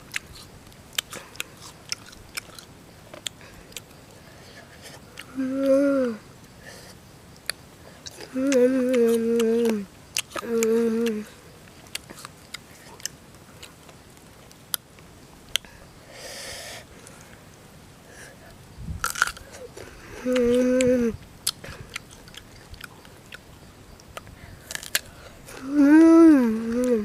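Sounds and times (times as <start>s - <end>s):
crunching and chewing fruit: 0.0s - 5.8s, 6.5s - 15.9s, 16.8s - 27.0s
boy saying mmm: 20.1s - 21.2s, 25.5s - 27.0s.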